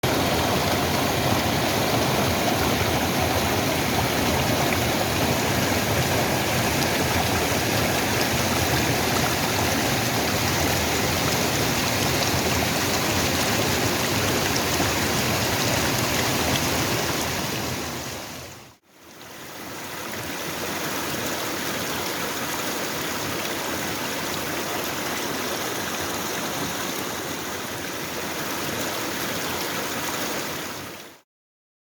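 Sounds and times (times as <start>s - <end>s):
waterfall rushing: 0.0s - 18.8s.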